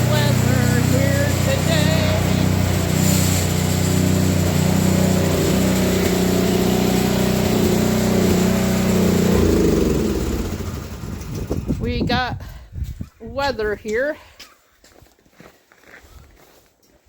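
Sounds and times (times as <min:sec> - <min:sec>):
engine humming: 0:00.0 - 0:12.2.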